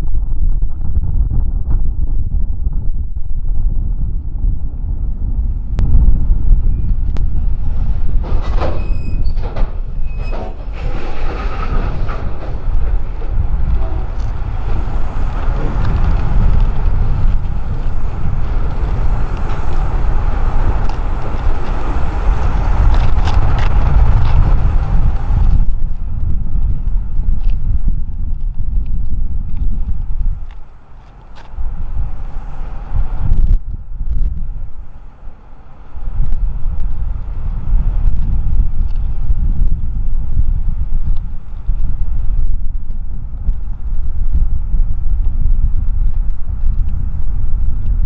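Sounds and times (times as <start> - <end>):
wind rumble on microphone: 0.0 - 48.0
freight train clattering: 5.8 - 26.4.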